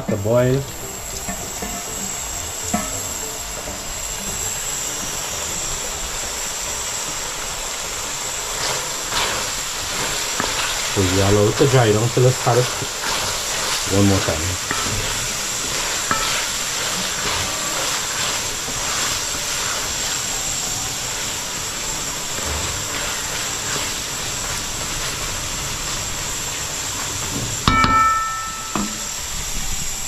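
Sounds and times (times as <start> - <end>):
food sizzling in a pot: 0.0 - 30.0
sharp ringing knock: 27.7 - 29.1.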